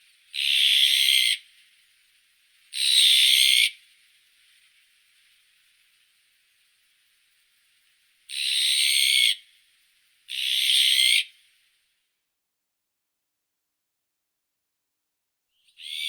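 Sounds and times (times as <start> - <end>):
magpie harsh rasping calls: 0.3 - 1.4, 10.3 - 11.3.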